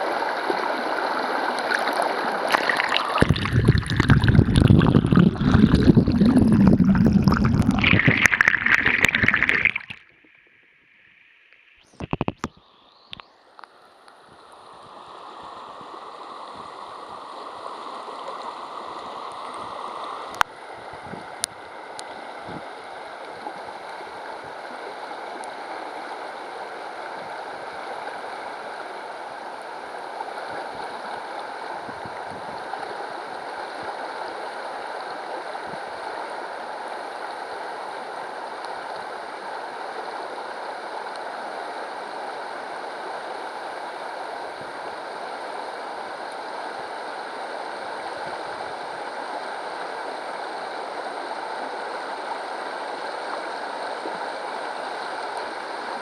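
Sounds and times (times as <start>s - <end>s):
river babbling over stones: 0.0s - 12.5s.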